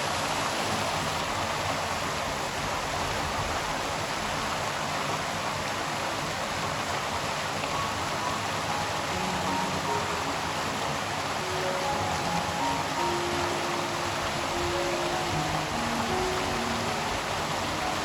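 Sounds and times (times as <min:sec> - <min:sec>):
river water flowing: 0:00.0 - 0:18.0
faint musical notes: 0:07.6 - 0:18.0.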